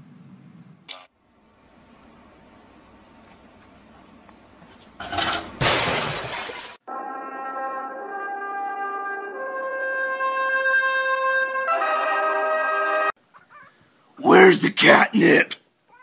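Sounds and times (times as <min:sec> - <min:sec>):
loud crash of something breaking: 0:05.2 - 0:06.8
held brass chords: 0:06.9 - 0:13.2.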